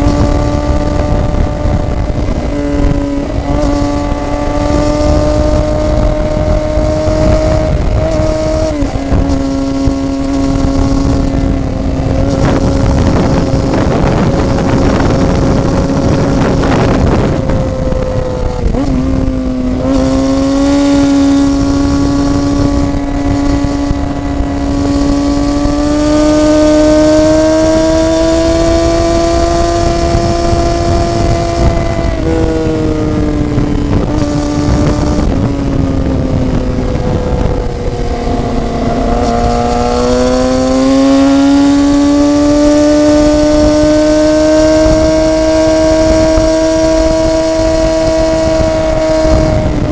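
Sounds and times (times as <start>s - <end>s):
motorcycle engine running: 0.0s - 49.9s
wind rush: 0.0s - 49.9s.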